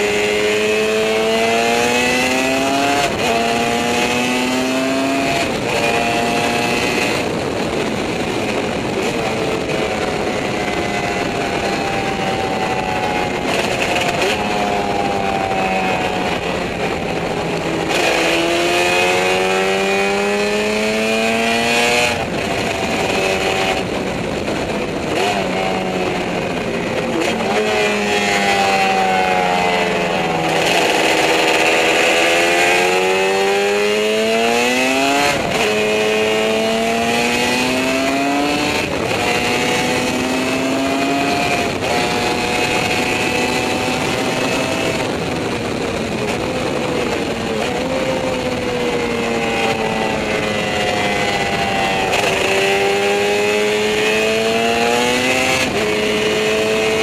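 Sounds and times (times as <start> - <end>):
racing motorcycle engine: 0.0 - 57.0.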